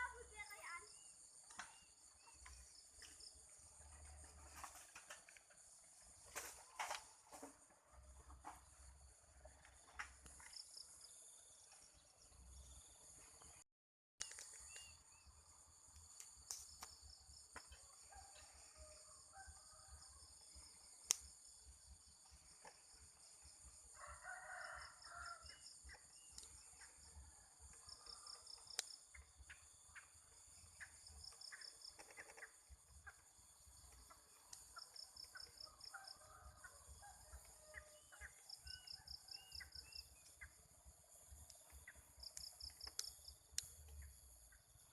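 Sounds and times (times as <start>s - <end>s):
cricket-like chirps: 0.0s - 13.6s, 14.2s - 44.9s
rooster crowing: 23.9s - 25.6s.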